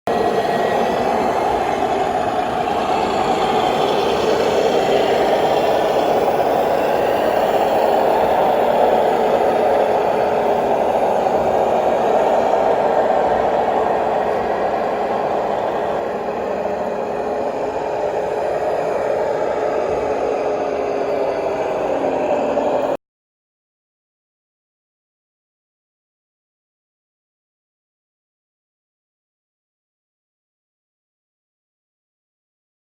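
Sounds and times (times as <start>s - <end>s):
toy truck motor drone: 0.1s - 23.0s.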